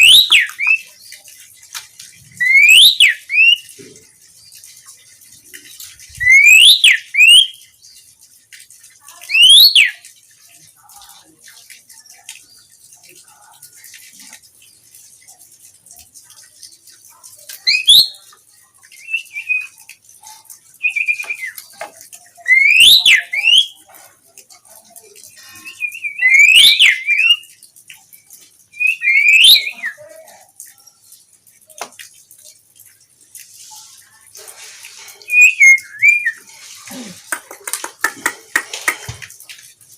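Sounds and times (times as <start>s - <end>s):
starling whistled calls: 2.4s - 3.6s, 25.5s - 27.4s, 35.2s - 36.5s.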